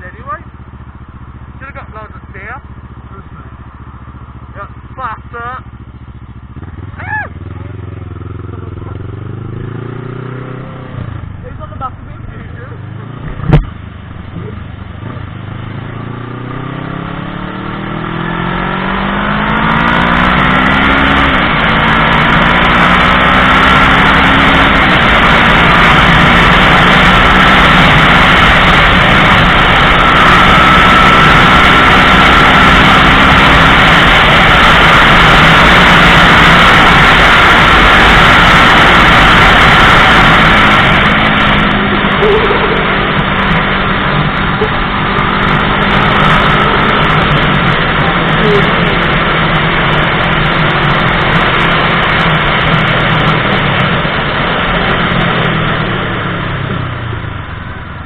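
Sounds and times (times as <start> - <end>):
motorcycle engine accelerating: 0.0 - 58.0
heavy wind rush: 24.6 - 58.0.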